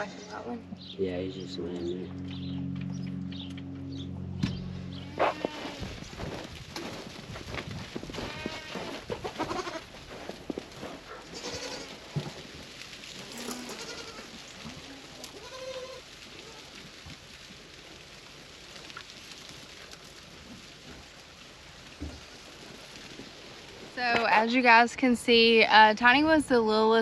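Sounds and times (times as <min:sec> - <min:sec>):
goats bleating: 0:00.0 - 0:00.5, 0:05.0 - 0:05.9, 0:08.1 - 0:09.9, 0:11.2 - 0:12.1, 0:13.3 - 0:16.7.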